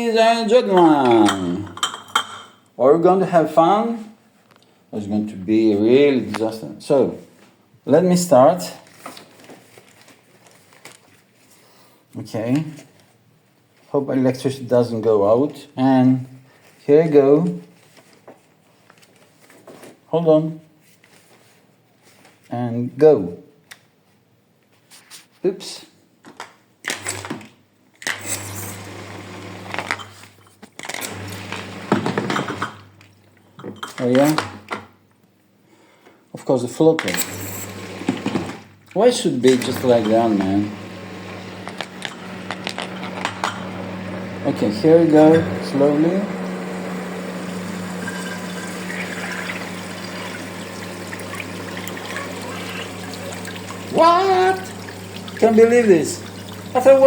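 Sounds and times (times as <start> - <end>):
glass bottles clinking: 0.7 - 2.6, 46.8 - 56.9
pump humming while spraying water: 31.1 - 32.1, 39.6 - 57.0.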